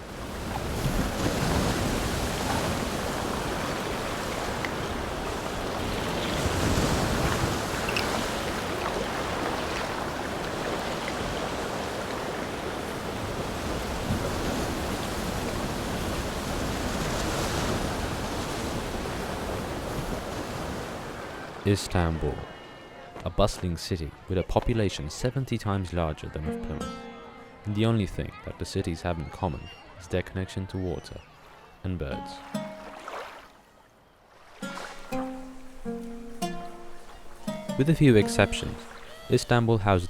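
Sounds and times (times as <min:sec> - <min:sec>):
sea waves rushing: 0:00.0 - 0:23.2, 0:31.2 - 0:33.7, 0:34.3 - 0:40.0
wind: 0:00.0 - 0:27.0, 0:27.6 - 0:40.0.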